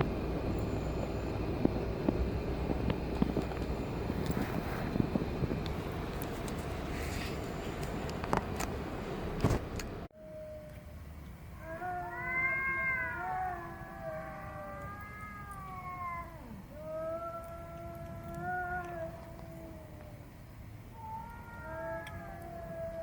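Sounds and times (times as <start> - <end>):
outdoor rustling: 0.0 - 23.0
cat meowing: 11.6 - 20.1, 21.0 - 23.0.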